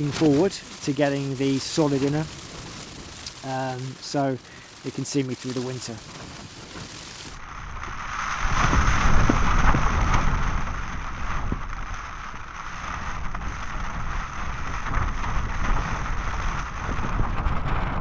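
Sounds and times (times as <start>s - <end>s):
heavy rain pelting: 0.0s - 7.4s
storm wind gusting: 0.0s - 7.4s
wind buffeting microphone: 0.0s - 7.4s.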